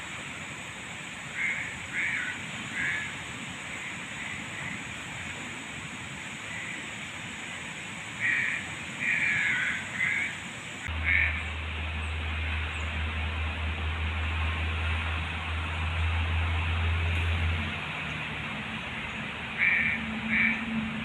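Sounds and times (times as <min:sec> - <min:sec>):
background hiss: 0:00.0 - 0:20.4
animal calling: 0:08.2 - 0:11.5, 0:19.6 - 0:20.7.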